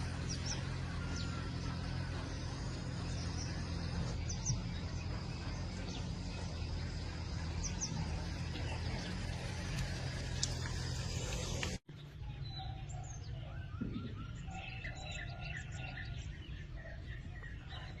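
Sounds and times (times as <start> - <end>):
low background rumble: 0.0 - 12.6
small birds chirping: 0.0 - 18.0.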